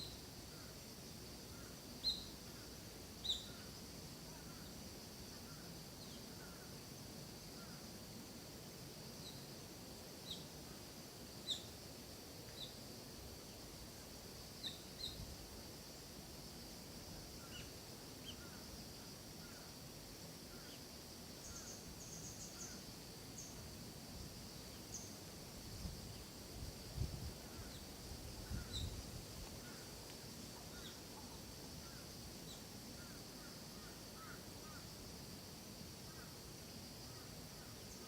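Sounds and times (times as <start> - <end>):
small birds chirping: 0.0 - 0.2, 1.6 - 3.8, 10.2 - 10.5, 11.4 - 11.8, 14.5 - 15.2, 20.5 - 23.6, 27.6 - 29.9, 30.6 - 33.2
insects droning: 0.0 - 38.0.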